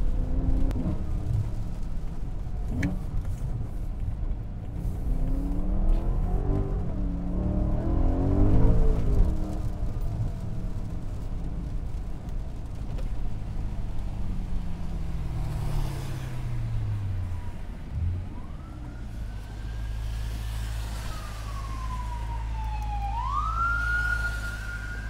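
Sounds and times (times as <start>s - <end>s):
car engine revving down and idling: 0.0s - 25.0s
tyres hissing on wet road: 12.7s - 17.5s, 19.1s - 22.6s, 23.4s - 25.0s
distant siren wailing: 17.2s - 25.0s.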